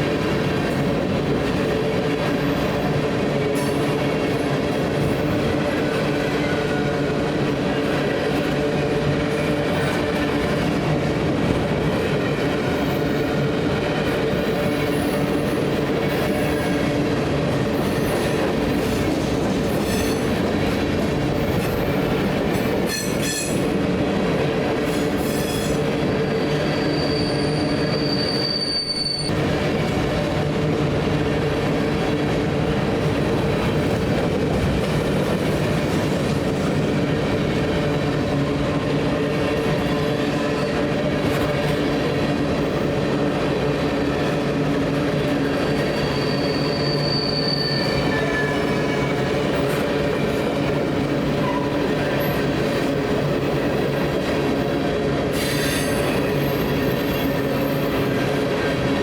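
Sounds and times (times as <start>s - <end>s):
train wheels rumbling on rails: 0.0s - 59.0s
wheel squeals: 25.2s - 29.3s, 45.7s - 49.1s.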